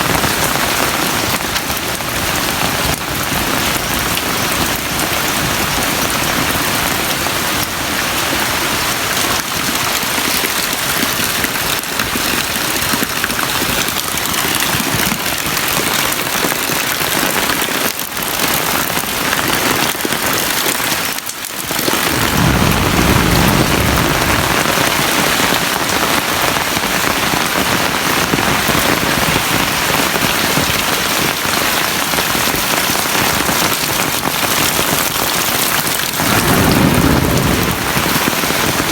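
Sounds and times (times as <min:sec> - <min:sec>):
heavy rain pouring: 0:00.0 - 0:38.9
low rumble: 0:22.1 - 0:25.1.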